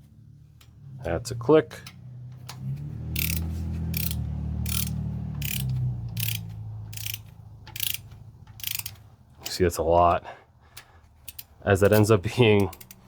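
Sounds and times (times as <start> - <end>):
torque wrench clicking: 1.8 - 9.6, 10.7 - 13.0.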